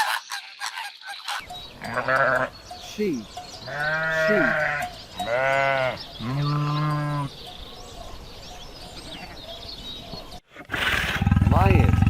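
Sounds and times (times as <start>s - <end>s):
sheep bleating: 1.8s - 2.6s, 3.7s - 7.3s.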